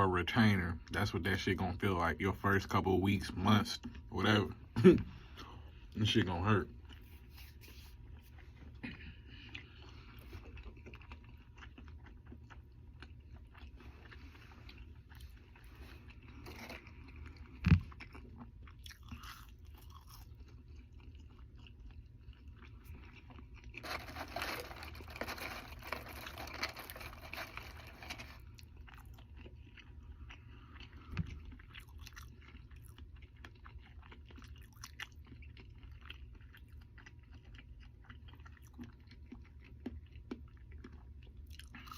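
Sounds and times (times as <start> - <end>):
person chewing: 3.7 - 41.9
crackly noise: 22.8 - 28.9.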